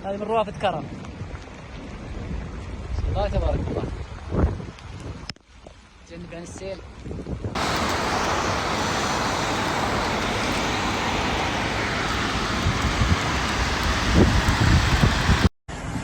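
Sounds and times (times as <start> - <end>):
wind buffeting microphone: 0.6 - 5.3, 6.9 - 16.0
rushing water: 7.6 - 15.5.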